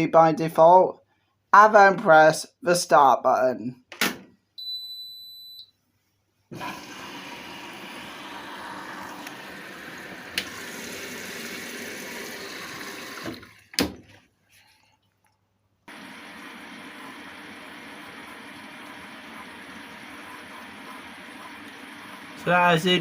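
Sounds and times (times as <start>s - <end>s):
washing machine beep: 4.6s - 5.8s
water rushing into machine: 6.5s - 13.8s, 15.9s - 23.0s.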